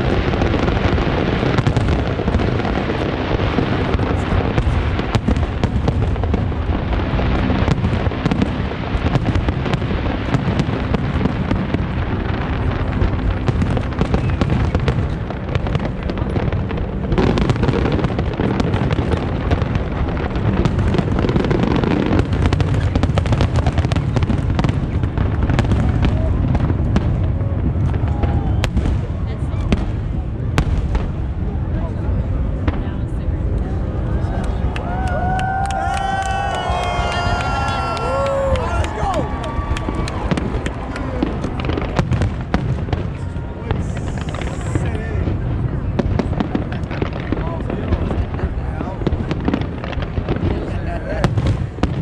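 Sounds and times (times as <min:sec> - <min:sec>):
fireworks booming and crackling: 0:00.0 - 0:52.0.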